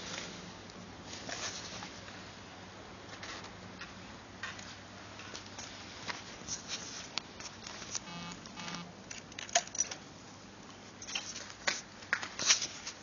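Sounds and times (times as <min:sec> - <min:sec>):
short buzzing tones: 0:08.0 - 0:09.0.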